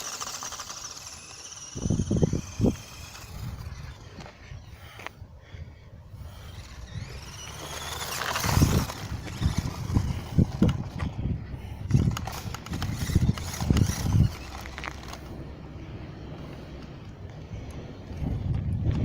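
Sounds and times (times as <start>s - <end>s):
toy truck electric motor whining: 0.0s - 5.2s, 6.1s - 15.5s.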